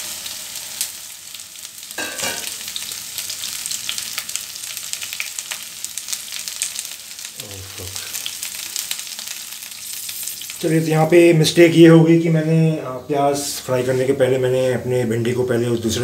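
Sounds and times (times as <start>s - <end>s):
okra sizzling in hot oil: 0.0s - 11.4s.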